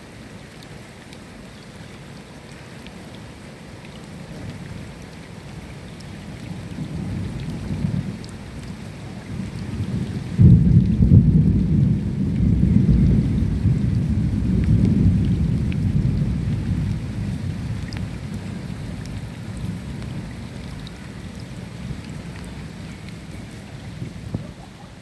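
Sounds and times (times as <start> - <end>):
rain hissing: 5.4 - 25.0
thunder rumbling: 6.6 - 25.0.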